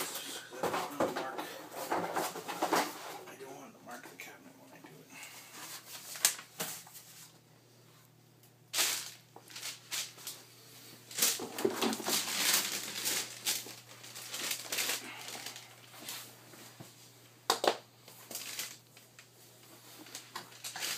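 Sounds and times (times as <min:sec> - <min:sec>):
cardboard crinkling and shuffling: 0:08.8 - 0:10.4, 0:11.1 - 0:17.0, 0:18.1 - 0:20.9.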